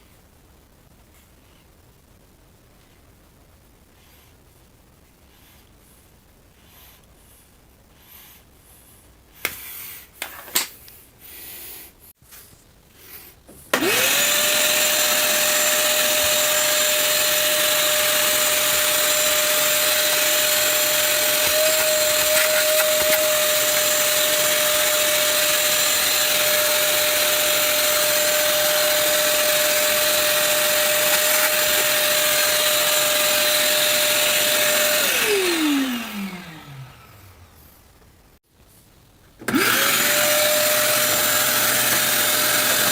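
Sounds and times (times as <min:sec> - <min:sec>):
vacuum cleaner running: 0:13.7 - 0:37.7, 0:39.4 - 0:42.9.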